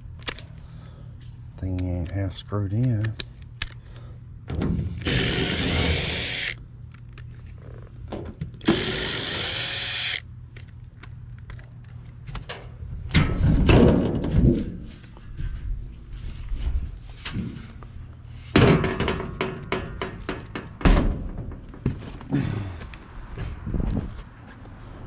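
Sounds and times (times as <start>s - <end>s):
cordless drill whining: 5.0s - 6.6s, 8.6s - 10.2s
knocks and rattles: 12.4s - 15.0s, 18.5s - 22.3s.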